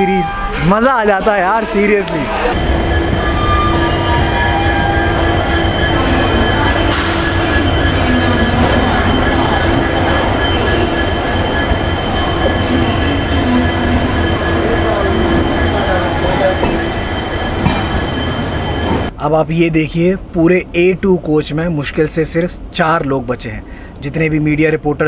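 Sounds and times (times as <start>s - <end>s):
thin steady whine: 2.5s - 19.1s
train wheels rumbling on rail: 2.5s - 19.2s.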